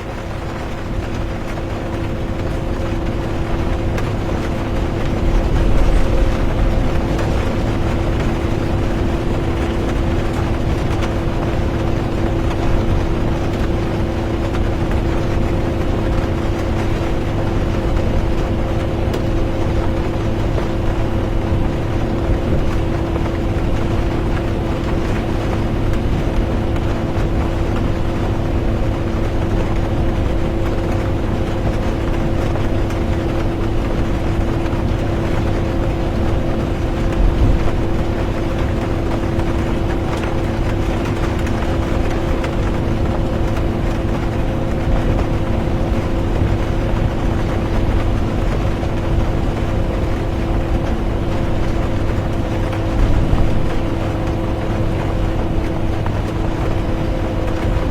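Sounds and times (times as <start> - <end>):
bus engine drone: 0.0 - 27.5, 41.0 - 57.9
road rumble: 2.7 - 11.6.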